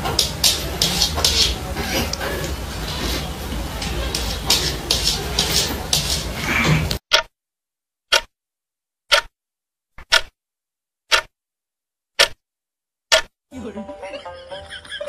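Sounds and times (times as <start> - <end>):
dense clattering noise: 0.0 - 7.3
wall clock ticking: 3.8 - 7.3, 8.1 - 8.3, 9.1 - 9.3, 10.0 - 10.3, 11.1 - 11.3, 12.2 - 12.4, 13.1 - 13.3.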